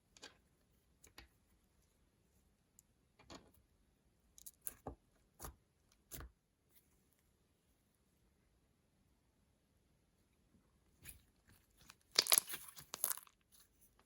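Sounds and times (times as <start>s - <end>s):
slime squelching and popping: 11.9s - 13.3s.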